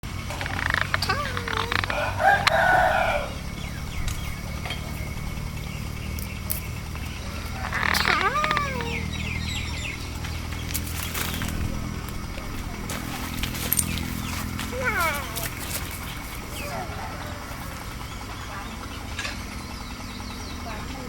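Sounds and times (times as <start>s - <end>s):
steady low hum: 0.0s - 21.0s
rooster crowing: 1.4s - 4.0s, 7.2s - 9.2s, 16.4s - 18.2s.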